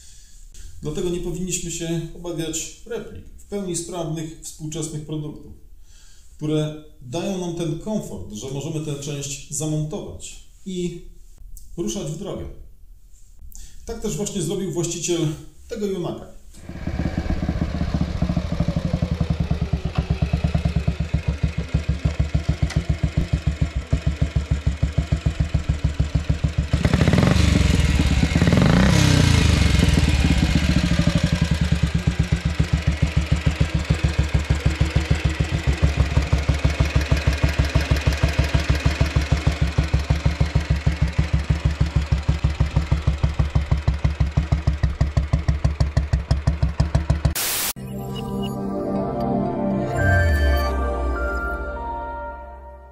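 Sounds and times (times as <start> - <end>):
single-cylinder engine running: 16.6 - 47.4.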